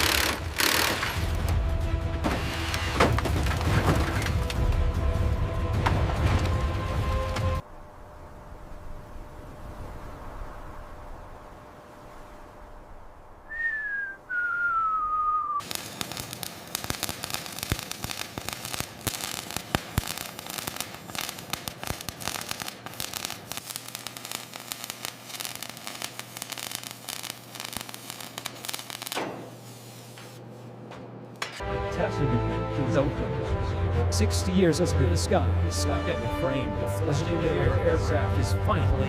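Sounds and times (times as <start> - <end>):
dense crackling: 12.8 - 29.2
high whistle sliding down: 13.4 - 15.7.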